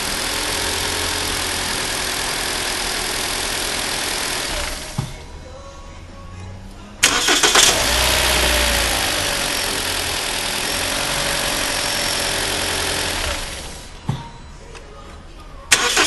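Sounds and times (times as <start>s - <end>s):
starter motor cranking: 0.0s - 5.2s, 7.0s - 14.0s, 15.7s - 16.0s
car engine idling: 0.0s - 14.2s, 15.7s - 16.0s.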